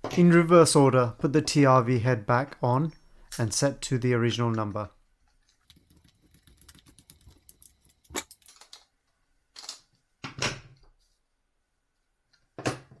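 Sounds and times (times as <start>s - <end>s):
hand handling noises: 5.3s - 9.0s.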